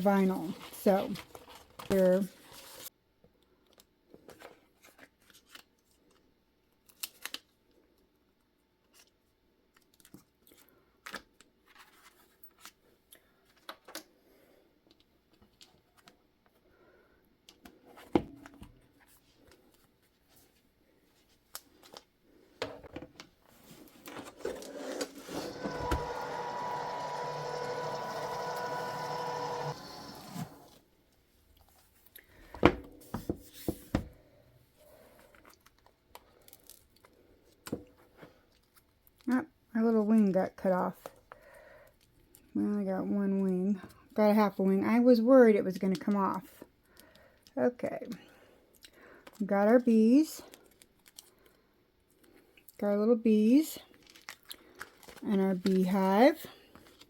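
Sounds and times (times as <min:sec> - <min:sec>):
vinyl pieces clicking and crinkling: 0:06.8 - 0:07.6, 0:08.9 - 0:12.8, 0:53.9 - 0:55.9
electric die cutter motor humming: 0:24.8 - 0:30.8.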